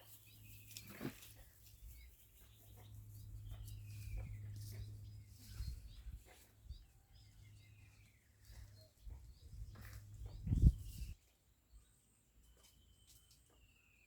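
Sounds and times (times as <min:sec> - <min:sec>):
birds whistling and chirping: 0:00.2 - 0:11.2.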